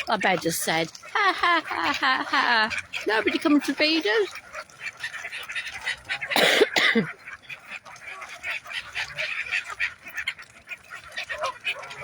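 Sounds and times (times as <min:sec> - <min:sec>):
geese and ducks honking and quacking: 0:00.0 - 0:12.0.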